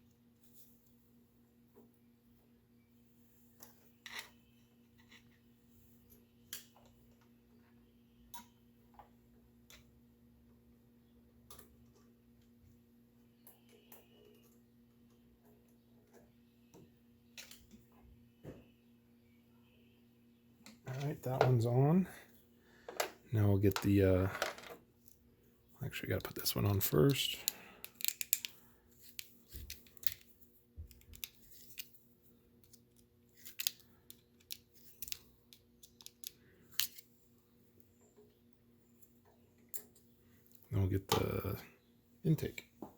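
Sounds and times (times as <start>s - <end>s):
parts clicking and tapping: 26.1s - 32.0s, 32.6s - 37.0s.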